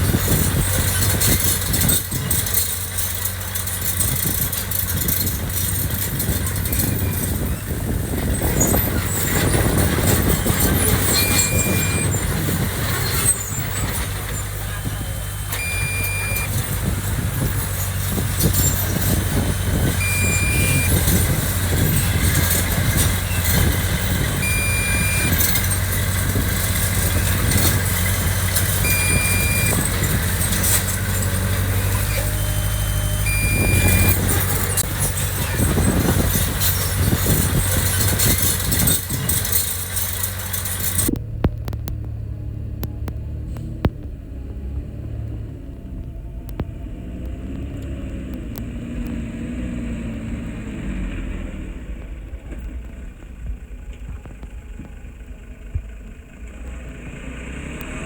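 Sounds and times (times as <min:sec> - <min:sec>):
heavy machinery diesel engine: 0:00.0 - 0:58.0
two-tone warning beep: 0:11.0 - 0:12.2, 0:15.1 - 0:16.6, 0:20.0 - 0:21.3, 0:24.4 - 0:25.7, 0:28.8 - 0:30.1, 0:32.1 - 0:34.5.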